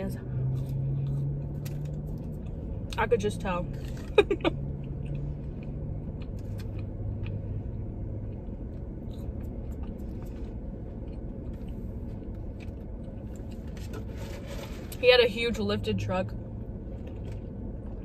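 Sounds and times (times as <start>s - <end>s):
steady low hum: 0.0s - 18.0s
chewing food: 4.8s - 14.0s, 16.8s - 18.0s.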